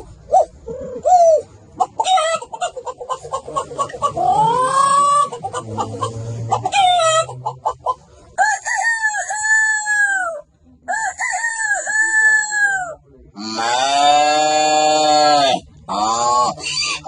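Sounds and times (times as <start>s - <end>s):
man imitating a chicken: 3.9s - 7.4s, 11.5s - 17.0s.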